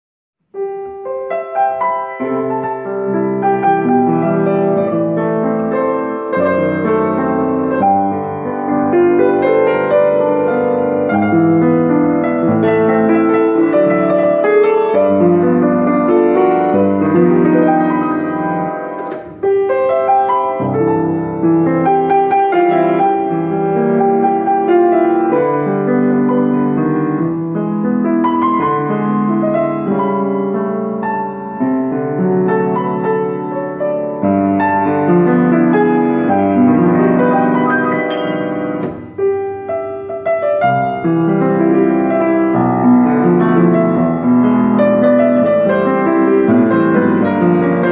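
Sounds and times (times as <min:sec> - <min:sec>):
piano chords: 0:00.4 - 0:47.9.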